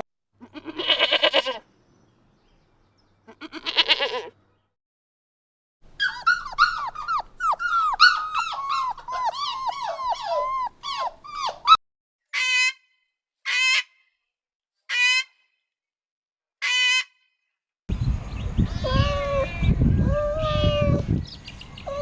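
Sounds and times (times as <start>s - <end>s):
animal high squeaks sliding downward: 6.0s - 11.8s
animal quavering cries: 6.0s - 11.8s, 18.6s - 22.0s.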